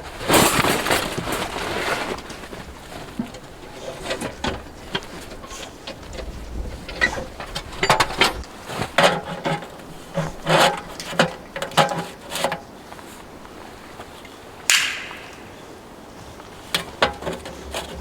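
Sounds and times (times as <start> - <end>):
stove parts knocking and clanking: 3.0 - 12.7, 16.7 - 18.0
wind buffeting microphone: 4.6 - 8.6.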